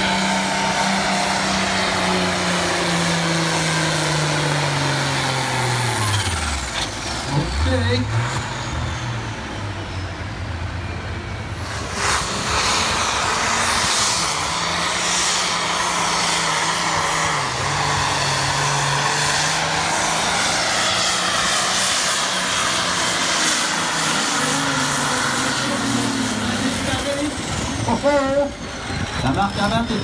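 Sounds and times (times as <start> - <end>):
tractor engine under load: 0.0 - 12.8.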